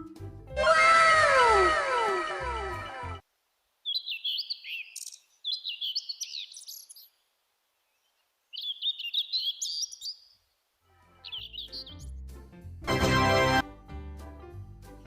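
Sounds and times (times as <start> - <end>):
bird chirping: 3.8 - 10.6, 11.2 - 12.1.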